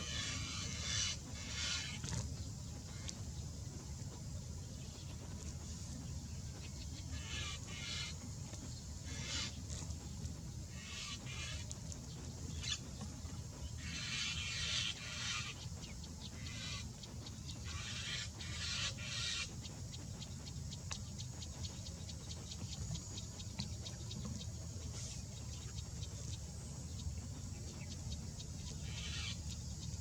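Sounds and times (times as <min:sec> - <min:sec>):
birds chattering harshly: 0:00.0 - 0:02.2, 0:07.0 - 0:19.8, 0:28.7 - 0:29.6
steady low hum: 0:00.0 - 0:30.0.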